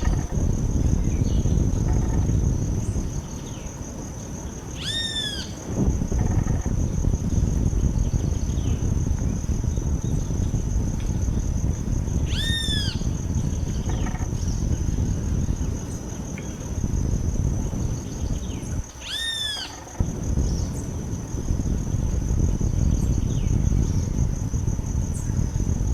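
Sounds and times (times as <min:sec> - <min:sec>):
low rumble: 0:00.0 - 0:03.3, 0:05.7 - 0:18.9, 0:20.0 - 0:25.9
high insect buzz: 0:00.0 - 0:25.9
bird calls: 0:04.8 - 0:05.6, 0:12.3 - 0:14.8, 0:18.0 - 0:20.0.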